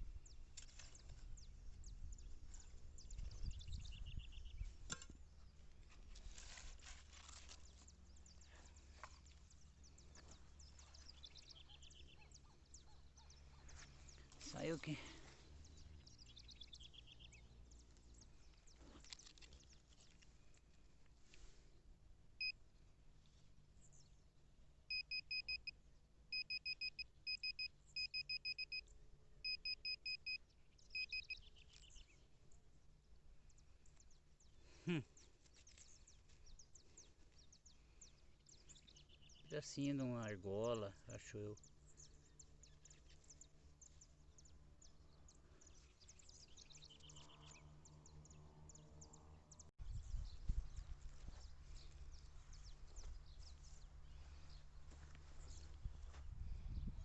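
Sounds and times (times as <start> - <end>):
metal detector beeping: 24.9 - 28.8, 29.4 - 31.4
high bird chirps: 29.5 - 32.1.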